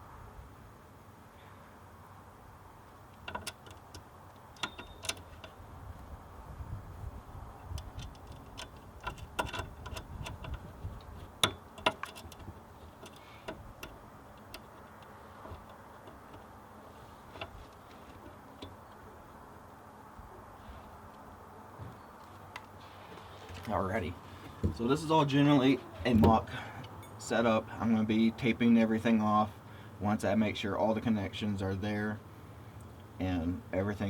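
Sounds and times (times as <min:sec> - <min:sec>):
metallic knocks of cables and tools: 0:03.1 - 0:05.6, 0:07.6 - 0:16.6.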